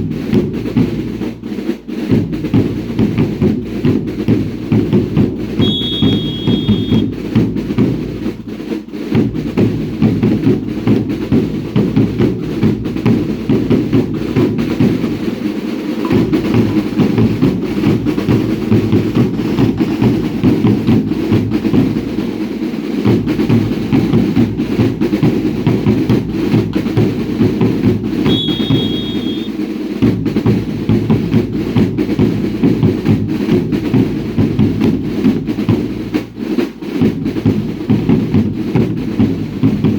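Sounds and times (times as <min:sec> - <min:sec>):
drums beating a driving rhythm: 0:00.0 - 0:39.9
shrill two-tone whistle: 0:05.6 - 0:07.1, 0:28.3 - 0:29.5.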